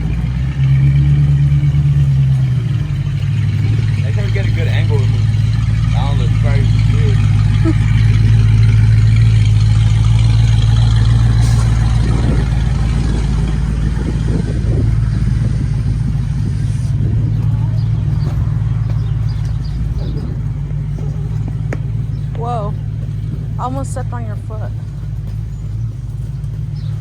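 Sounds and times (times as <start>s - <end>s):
faint clatter: 0.0s - 27.0s
vehicle engine humming: 0.0s - 27.0s.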